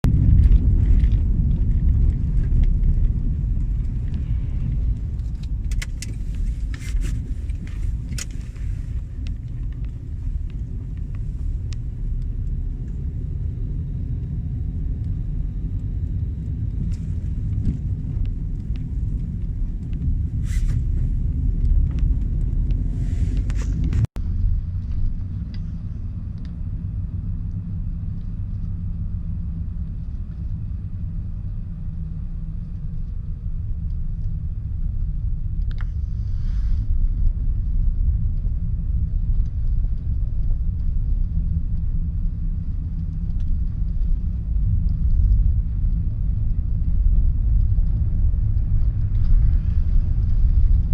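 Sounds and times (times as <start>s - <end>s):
truck engine rumbling: 0.1s - 24.9s.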